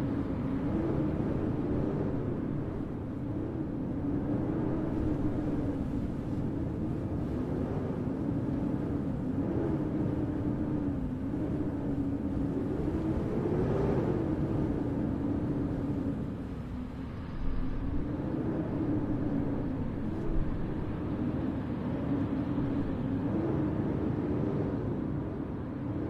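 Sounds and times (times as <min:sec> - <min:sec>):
blizzard wind blowing: 0:00.0 - 0:26.0.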